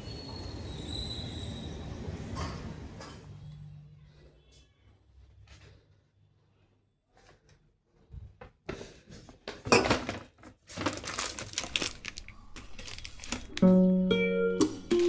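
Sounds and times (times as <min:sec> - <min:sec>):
rustling and crinkling: 0:07.1 - 0:13.6.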